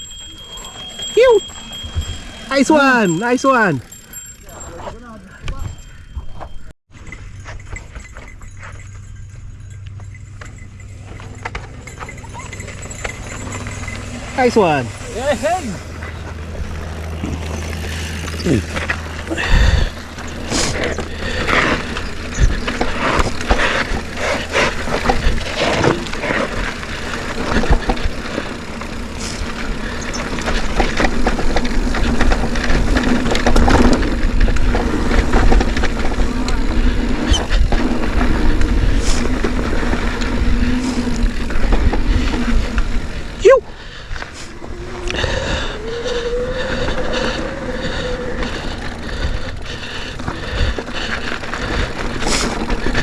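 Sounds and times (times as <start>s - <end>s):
tyres rumbling on dirt: 0.0s - 5.9s, 7.0s - 53.0s
bike rattling over bumps: 0.0s - 53.0s
wind on microphone: 32.3s - 53.0s.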